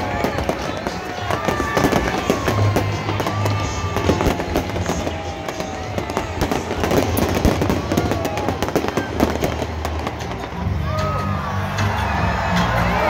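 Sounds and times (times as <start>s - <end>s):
fireworks bangs and crackles: 0.0s - 11.0s
music playing: 0.0s - 13.0s.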